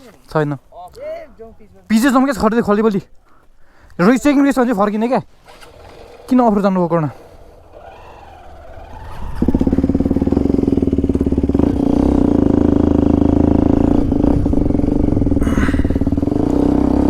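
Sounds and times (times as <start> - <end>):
motorcycle engine pulling away: 5.4 - 17.0.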